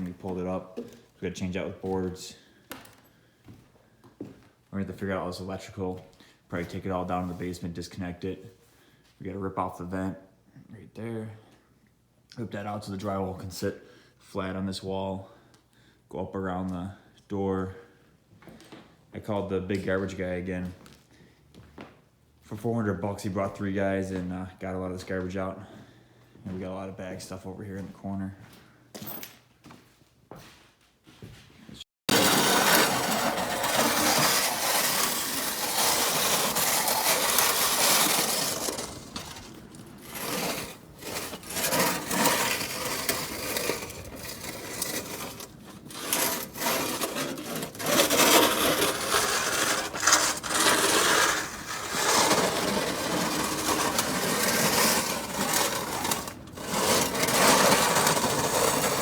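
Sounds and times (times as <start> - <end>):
harsh rasping demolition noise: 32.1 - 59.0.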